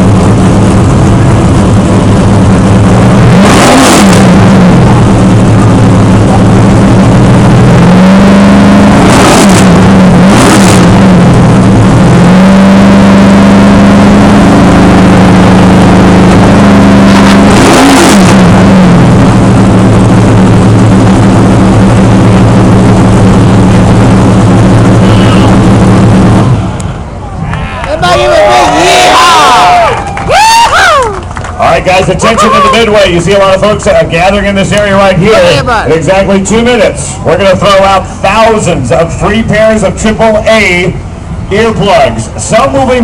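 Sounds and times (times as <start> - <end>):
race car engine running loud: 0.0 - 27.5, 28.1 - 43.0
sharp engine revs: 0.1 - 26.8.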